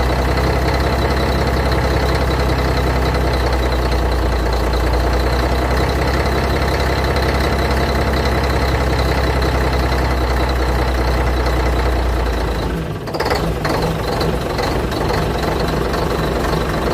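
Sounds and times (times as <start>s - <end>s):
diesel truck engine idling: 0.0s - 16.9s.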